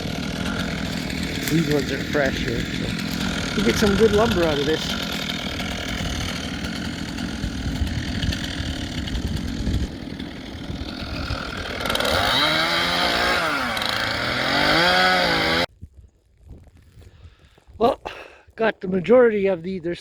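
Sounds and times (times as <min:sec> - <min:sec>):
chainsaw cutting logs: 0:00.0 - 0:15.7.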